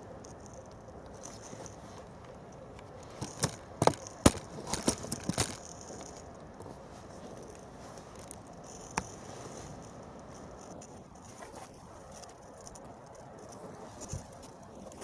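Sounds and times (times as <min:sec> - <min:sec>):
steady background hiss: 0:00.0 - 0:15.0
sharp light clicks and knocks: 0:00.2 - 0:06.7.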